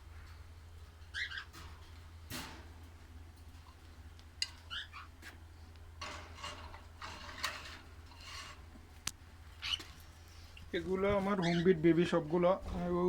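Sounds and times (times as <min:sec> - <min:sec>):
steady low hum: 0:00.0 - 0:13.0
parrots chirping: 0:01.1 - 0:01.6, 0:04.6 - 0:05.2, 0:09.6 - 0:10.0, 0:11.4 - 0:11.9.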